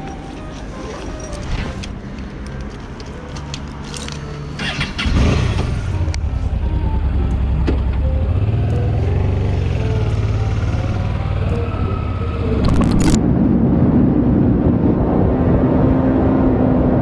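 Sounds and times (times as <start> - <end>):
light clicks and jingling: 2.6 - 4.6
motorcycle engine idling: 4.6 - 12.6.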